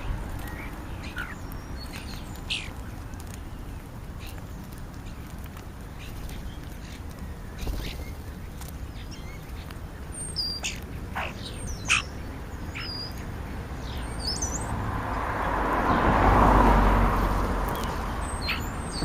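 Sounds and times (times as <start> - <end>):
starlings whistling and chirping: 0.0 - 5.3, 5.9 - 14.7, 17.7 - 19.0
vehicle passing by: 12.4 - 19.0.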